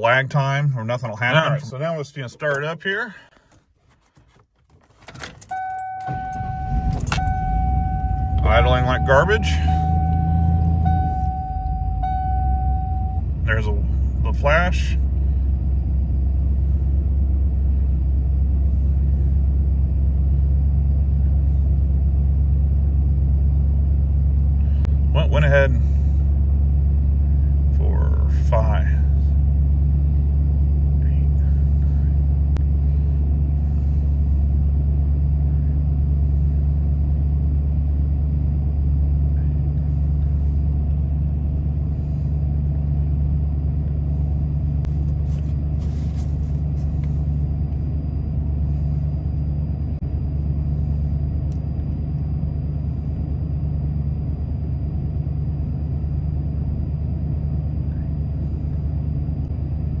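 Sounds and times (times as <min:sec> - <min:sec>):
truck engine idling roughly: 0:13.5 - 0:51.4.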